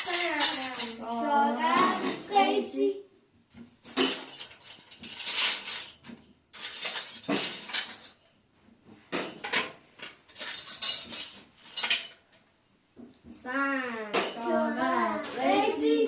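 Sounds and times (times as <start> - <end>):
household objects clattering: 0.0 - 2.7, 3.5 - 8.2, 8.9 - 12.4.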